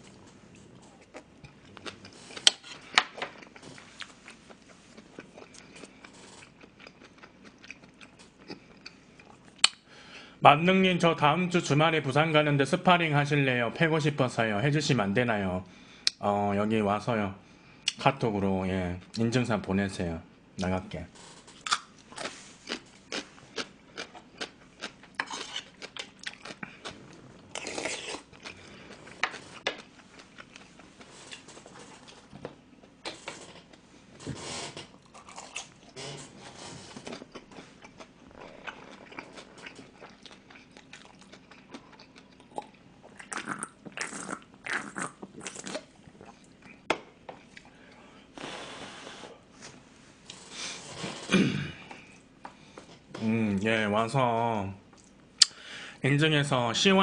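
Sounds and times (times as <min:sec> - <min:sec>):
person chewing food: 0:00.0 - 0:09.8, 0:21.5 - 0:33.8, 0:34.9 - 0:36.0, 0:36.8 - 0:48.1.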